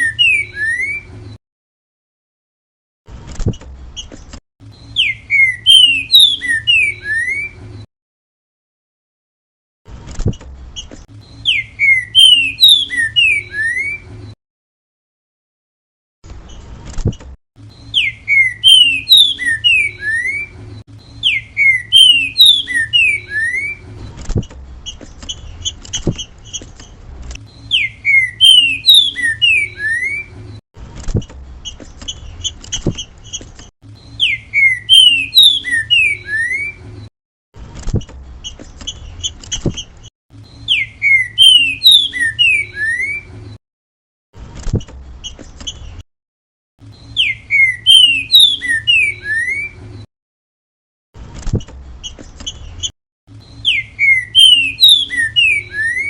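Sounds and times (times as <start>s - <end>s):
bird singing whistled phrase: 0.0s - 1.1s, 4.8s - 7.6s, 11.3s - 14.0s, 17.8s - 20.5s, 21.2s - 23.8s, 27.6s - 30.3s, 34.1s - 36.8s, 40.6s - 43.3s, 47.0s - 49.8s, 53.5s - 56.0s.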